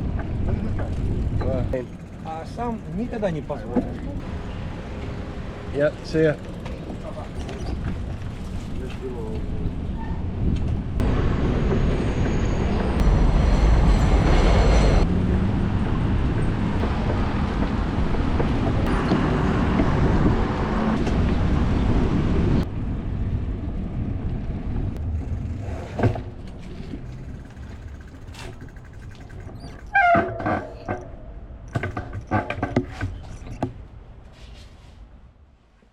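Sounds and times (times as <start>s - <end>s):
street traffic rumbling: 0.0s - 35.6s
scattered clicks: 27.0s - 29.9s.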